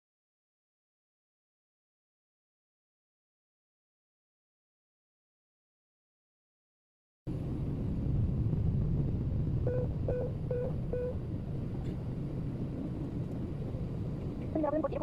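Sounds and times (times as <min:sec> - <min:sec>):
airliner cabin rumble: 0:07.3 - 0:15.0
short beeps: 0:09.7 - 0:11.2.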